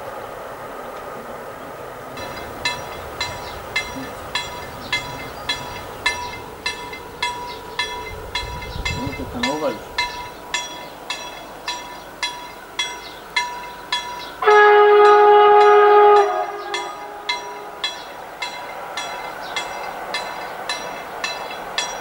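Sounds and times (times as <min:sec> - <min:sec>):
train wheels clacking on rail joints: 0:02.2 - 0:22.0
multi-tone train horn: 0:14.3 - 0:18.4.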